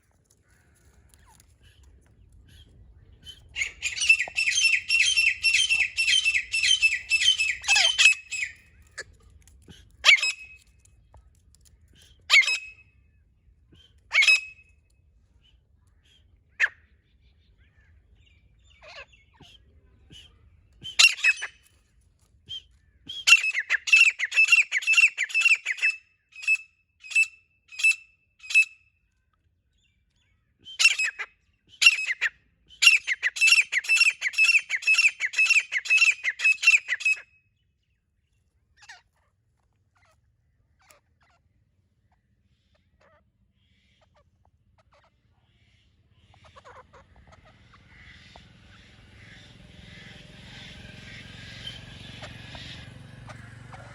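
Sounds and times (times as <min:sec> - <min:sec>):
francolin calling: 0:03.6 - 0:08.6.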